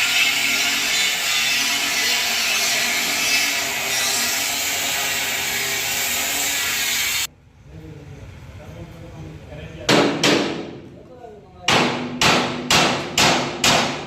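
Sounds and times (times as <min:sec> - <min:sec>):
power tool grinding metal: 0:00.0 - 0:07.3.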